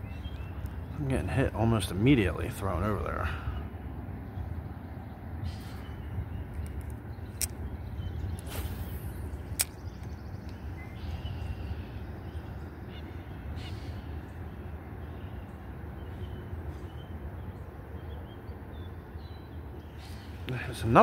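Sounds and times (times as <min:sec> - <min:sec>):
low hum: 0:00.0 - 0:20.9
birds chirping faintly: 0:00.0 - 0:21.0
sharp click: 0:06.6 - 0:07.6, 0:09.6 - 0:10.6.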